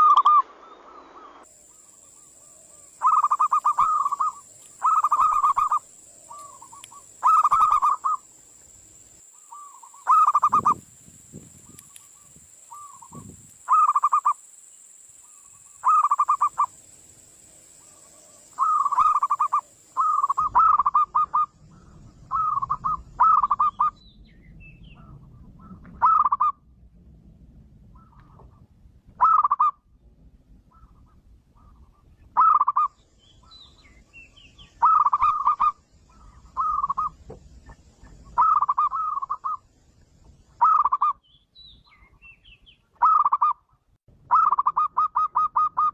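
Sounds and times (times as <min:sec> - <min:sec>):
dove cooing: 0:01.8 - 0:08.3, 0:09.5 - 0:10.8, 0:11.9 - 0:14.4, 0:15.8 - 0:16.7, 0:17.8 - 0:24.0, 0:25.0 - 0:26.5, 0:34.8 - 0:37.2, 0:38.2 - 0:39.6
low background rumble: 0:19.7 - 0:40.6.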